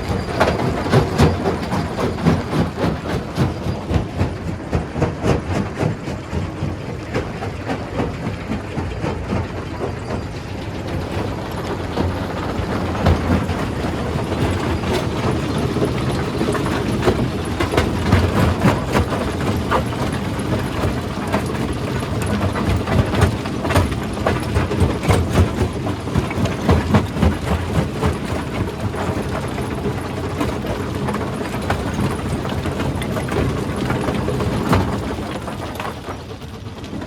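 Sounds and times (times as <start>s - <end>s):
stone crusher rumbling: 0.0s - 36.9s.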